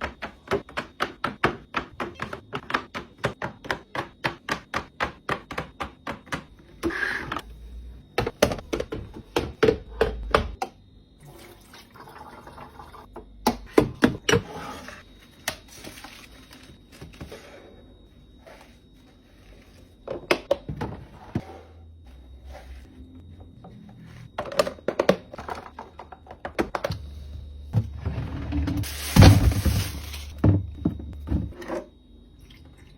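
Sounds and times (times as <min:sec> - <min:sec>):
containers tapping and clicking in fridge: 0:00.0 - 0:07.4, 0:08.2 - 0:10.8, 0:13.1 - 0:14.5, 0:24.3 - 0:27.1, 0:30.4 - 0:31.9.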